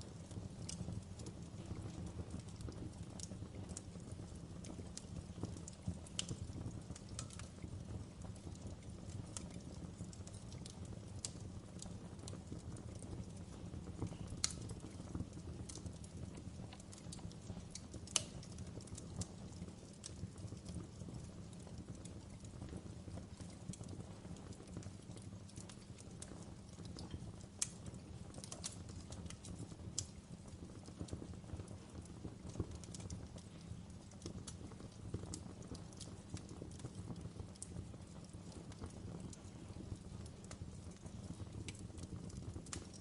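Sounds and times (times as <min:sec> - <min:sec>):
fire pops and snaps: 0:00.0 - 0:43.0
wood fire crackling: 0:00.0 - 0:43.0.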